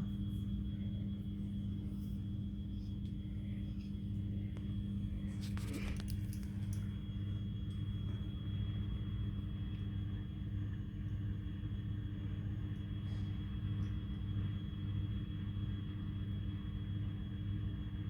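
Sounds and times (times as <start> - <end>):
washing machine spinning: 0.0 - 5.7.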